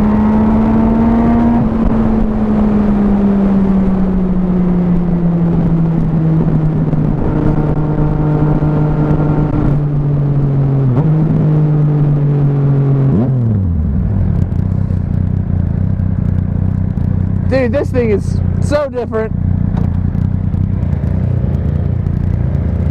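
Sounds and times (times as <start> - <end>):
wind noise on microphone: 0.0 - 14.7
motorcycle engine running: 0.0 - 22.9.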